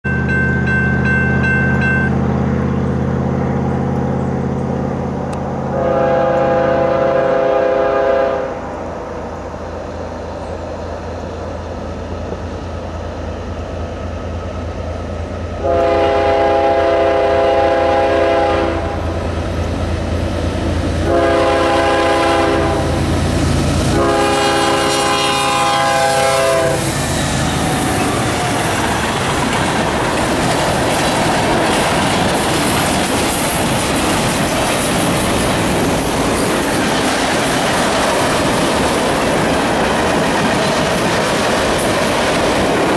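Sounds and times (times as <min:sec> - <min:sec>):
locomotive engine drone: 0:00.0 - 0:42.9
train horn blasts: 0:01.4 - 0:08.8, 0:15.6 - 0:19.3, 0:21.0 - 0:28.7
freight cars clacking on rails: 0:18.2 - 0:42.9.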